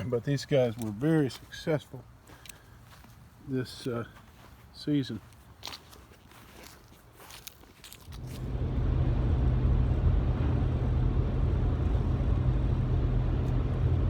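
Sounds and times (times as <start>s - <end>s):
road noise: 7.4s - 14.0s
truck engine rumble: 8.1s - 14.0s.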